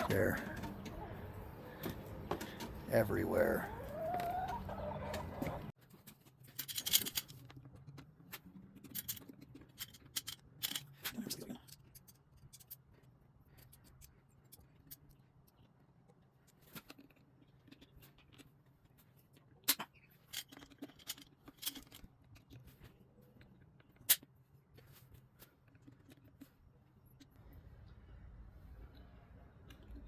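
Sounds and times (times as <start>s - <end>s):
faint low hum: 20.8s - 30.0s.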